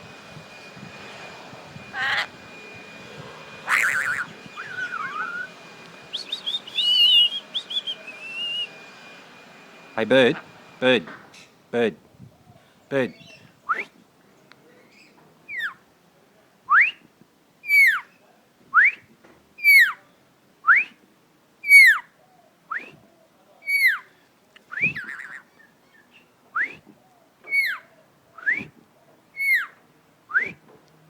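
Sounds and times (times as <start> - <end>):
parrot whistling: 1.9 - 2.4, 3.6 - 8.8, 21.6 - 22.0, 23.7 - 24.0, 24.7 - 25.4, 27.5 - 27.8, 29.4 - 30.5
person whistling: 6.1 - 8.7, 26.6 - 26.9, 28.4 - 28.7, 30.3 - 30.6.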